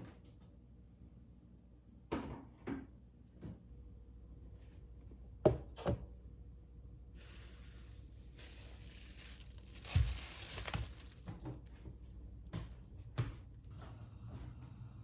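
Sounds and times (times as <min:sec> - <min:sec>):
rustling and crinkling: 0:07.2 - 0:13.7.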